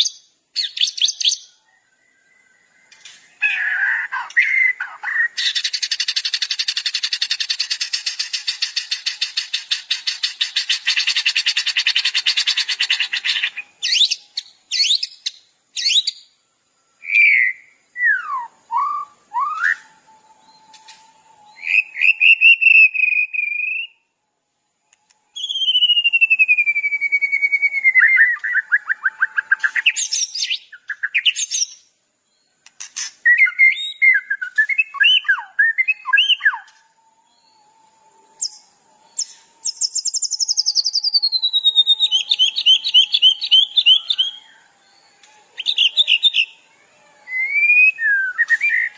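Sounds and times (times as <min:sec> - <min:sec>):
bird chirps and whistles: 0:00.0 - 0:01.5, 0:02.4 - 0:16.3, 0:17.0 - 0:24.0, 0:25.3 - 0:31.9, 0:32.8 - 0:37.5, 0:38.4 - 0:44.6, 0:45.6 - 0:46.6, 0:47.3 - 0:48.9
buzzy bird trill: 0:03.0 - 0:16.2, 0:38.3 - 0:48.9.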